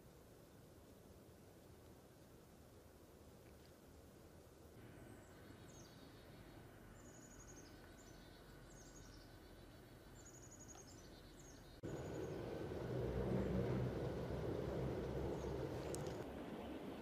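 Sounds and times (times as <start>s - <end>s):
songbird calls and trills: 4.8s - 16.9s
outdoor hiss: 11.8s - 16.2s
low rumble: 11.8s - 17.0s.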